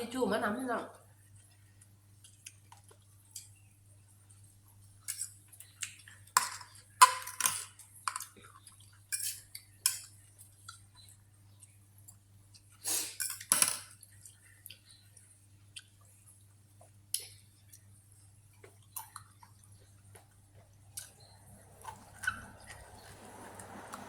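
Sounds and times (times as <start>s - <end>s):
cutlery clinking on a plate: 6.4s - 8.4s, 9.1s - 10.1s, 13.2s - 14.0s.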